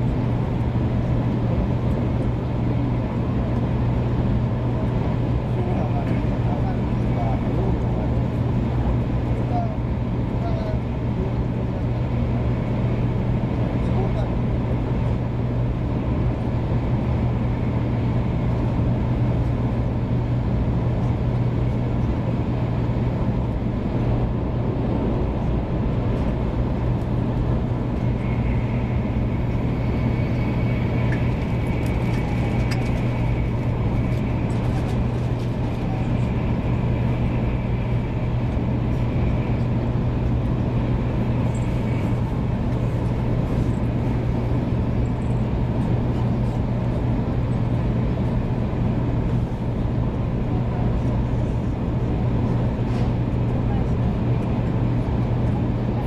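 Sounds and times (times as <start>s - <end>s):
train cabin low hum: 0.0s - 56.0s
faint high whine: 27.7s - 45.5s.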